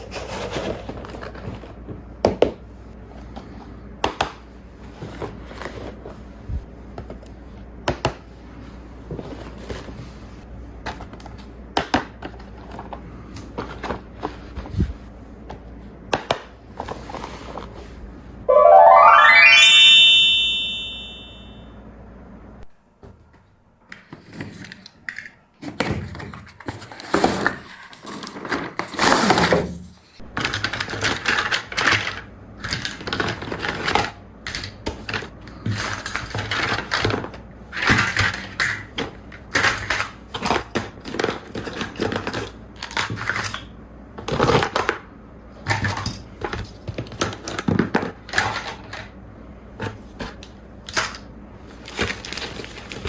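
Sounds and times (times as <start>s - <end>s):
plastic toys clicking and knocking: 30.3s - 45.0s, 45.7s - 49.1s
packaging crinkling rustles: 51.7s - 53.0s.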